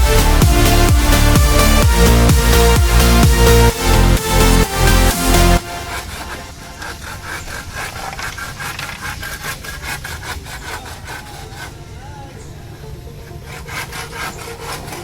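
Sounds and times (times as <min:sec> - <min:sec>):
electronic dance music: 0:00.0 - 0:06.7
hand tool scraping back and forth: 0:03.8 - 0:15.0.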